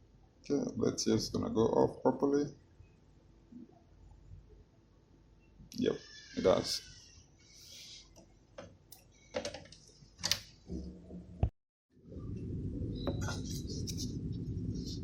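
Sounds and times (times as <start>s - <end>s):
steady low hum: 9.9s - 15.0s.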